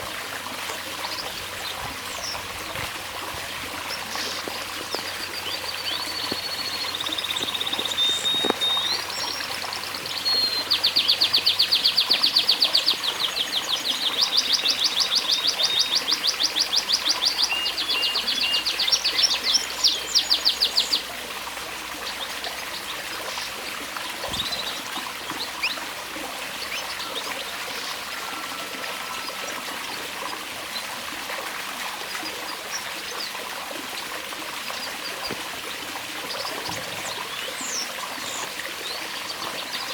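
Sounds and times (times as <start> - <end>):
trickle of running water: 0.0 - 39.9
canary singing trilled rolls: 1.8 - 13.0.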